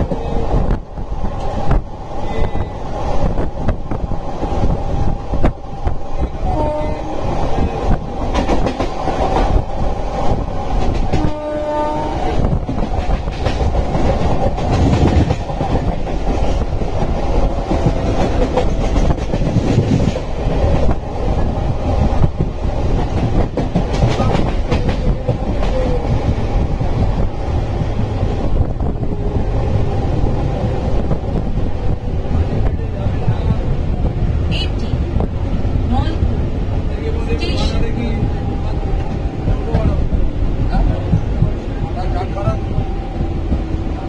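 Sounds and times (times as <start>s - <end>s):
train wheels rumbling on rails: 0.0s - 44.0s
train horn: 6.4s - 7.2s, 11.1s - 12.4s.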